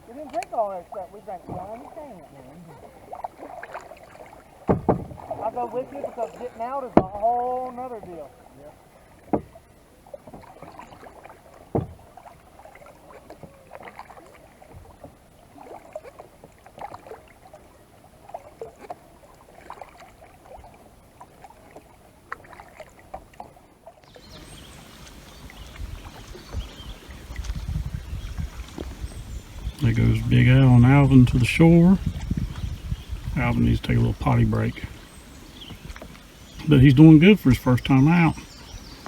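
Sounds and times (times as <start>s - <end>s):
paddle splashes and drips: 0.0s - 39.0s
paddle knocking against hull: 1.3s - 2.1s, 3.1s - 7.8s, 9.2s - 9.6s, 10.2s - 17.2s, 22.3s - 39.0s.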